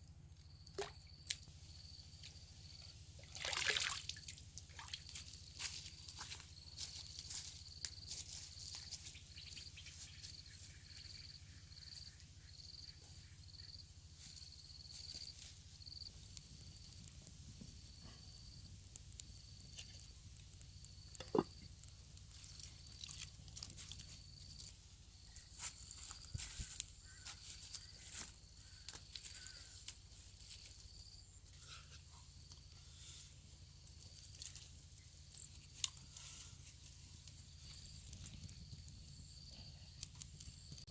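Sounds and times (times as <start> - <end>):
insect chirping: 0.4 - 32.8, 36.7 - 40.9
small clicks and crackles: 14.2 - 40.9.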